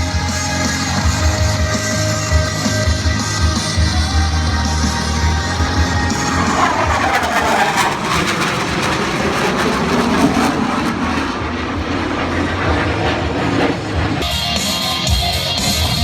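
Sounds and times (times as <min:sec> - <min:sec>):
music: 0:00.0 - 0:07.0, 0:14.1 - 0:16.0
jet engine roar: 0:00.0 - 0:16.0.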